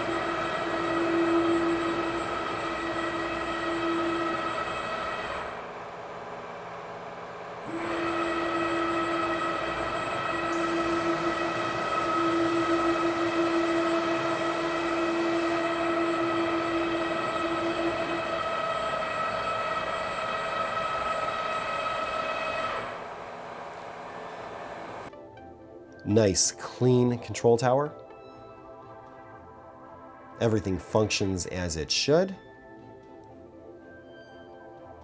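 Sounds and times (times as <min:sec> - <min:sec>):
router spindle high whine: 0:00.0 - 0:25.1.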